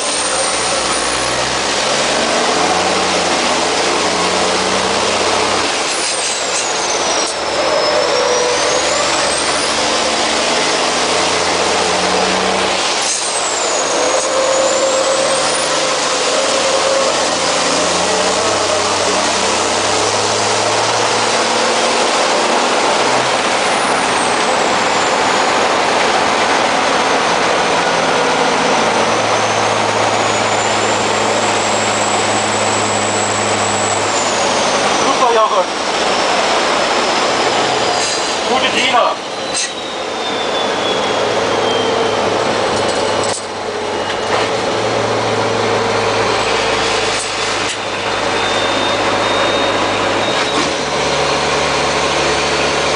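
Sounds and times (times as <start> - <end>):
truck engine running hard: 0.0 - 52.9
high whistle: 39.2 - 42.3, 46.3 - 51.5.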